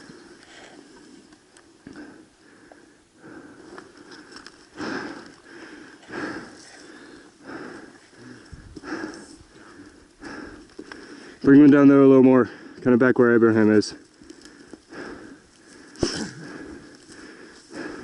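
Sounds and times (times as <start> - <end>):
heavy breathing: 1.8 - 11.5, 12.4 - 12.8, 14.0 - 18.0.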